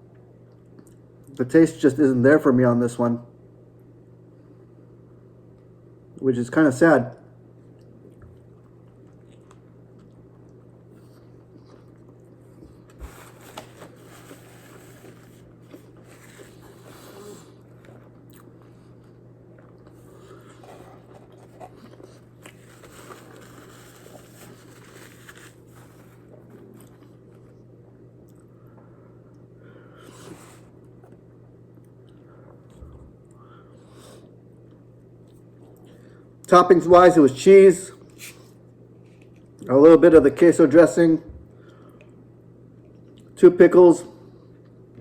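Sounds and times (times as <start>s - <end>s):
steady low hum: 0.0s - 45.0s
person chewing: 7.7s - 27.6s.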